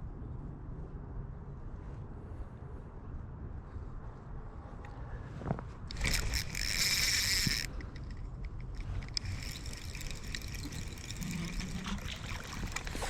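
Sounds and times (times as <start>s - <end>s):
fishing reel whirring: 5.9s - 13.0s
handling clicks and rustle: 5.9s - 13.0s.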